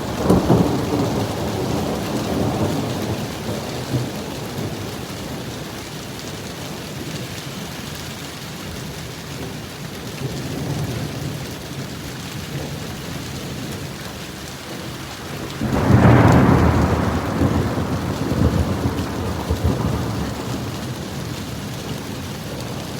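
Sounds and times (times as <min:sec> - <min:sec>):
thunder rumbling: 0:00.0 - 0:05.4, 0:14.9 - 0:22.9
steady rain: 0:00.0 - 0:22.9.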